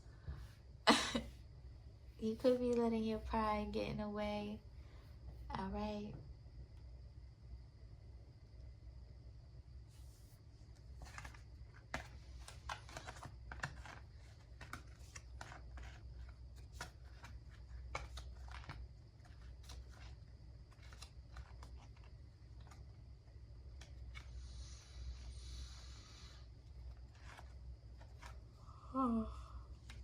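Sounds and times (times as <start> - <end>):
low steady hum: 0.0 - 30.0
cards shuffling clicks and taps: 10.8 - 23.0, 23.7 - 24.4, 26.9 - 28.4.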